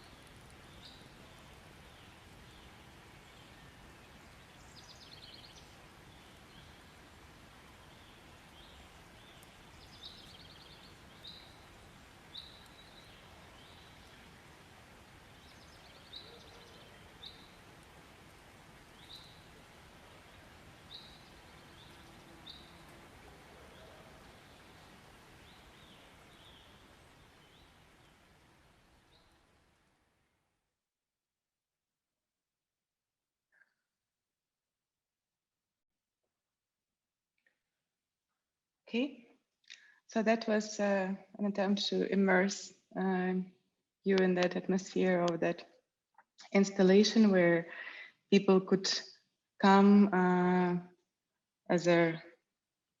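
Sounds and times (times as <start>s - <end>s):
steady hiss: 0.0s - 30.2s
birds chirping and trilling: 15.2s - 17.6s.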